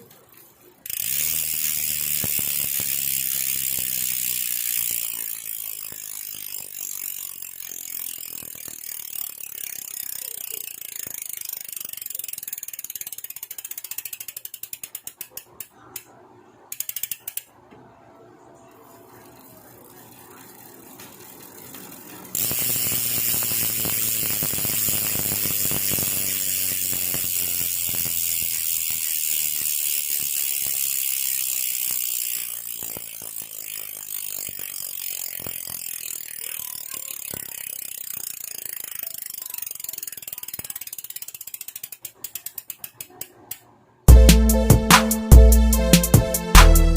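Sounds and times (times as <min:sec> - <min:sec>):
bicycle hub clicking: 0:00.0 - 0:17.9, 0:18.7 - 0:45.4
music: 0:44.1 - 0:46.9.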